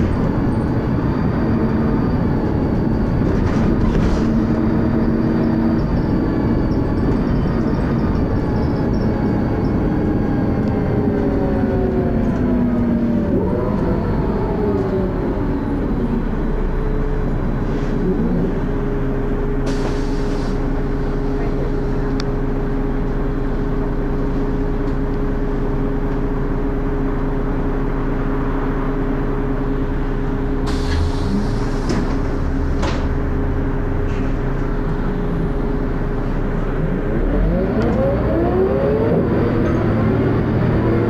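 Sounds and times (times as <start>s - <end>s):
bus engine revving: 0.0s - 41.0s.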